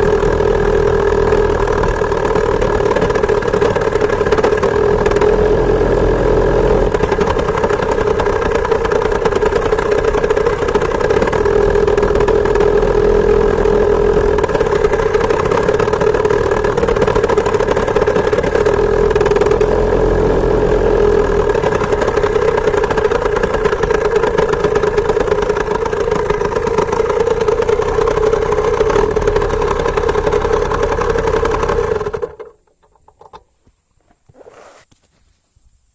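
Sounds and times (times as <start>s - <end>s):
two-stroke engine running: 0.0s - 32.6s.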